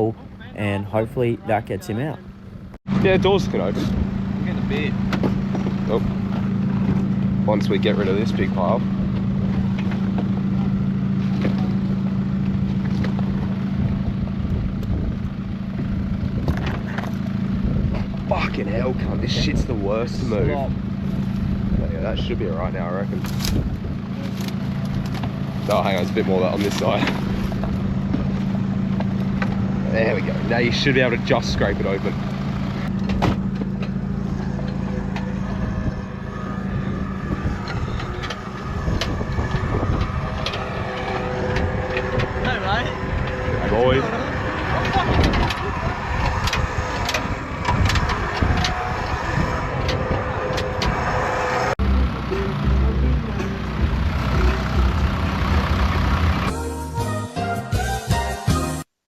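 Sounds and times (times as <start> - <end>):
engine idling: 0.0 - 56.6
wind noise on microphone: 13.3 - 18.4, 23.2 - 24.1, 35.6 - 51.8.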